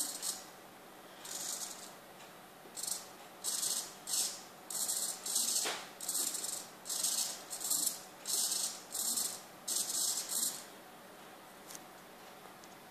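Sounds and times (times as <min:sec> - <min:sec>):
servos buzzing in short bursts: 0:02.8 - 0:10.6.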